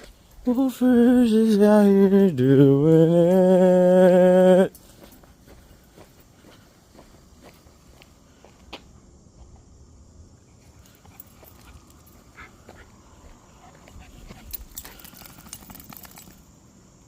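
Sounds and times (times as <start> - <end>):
dog paws ticking and scuffing: 4.7 - 8.8, 10.7 - 16.4.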